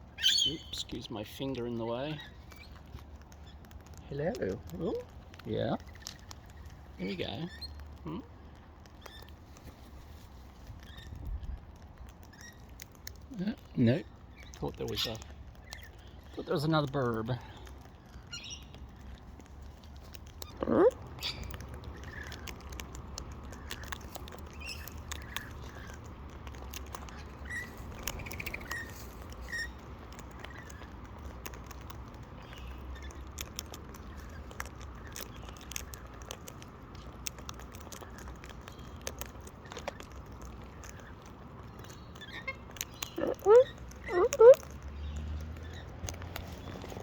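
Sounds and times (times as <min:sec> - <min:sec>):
parrots cracking seed: 0:00.0 - 0:47.0
soft bird chirps: 0:00.1 - 0:04.2, 0:05.8 - 0:11.6, 0:17.3 - 0:19.1, 0:21.2 - 0:22.5, 0:23.5 - 0:26.1, 0:26.8 - 0:30.9, 0:31.8 - 0:36.1, 0:38.0 - 0:47.0.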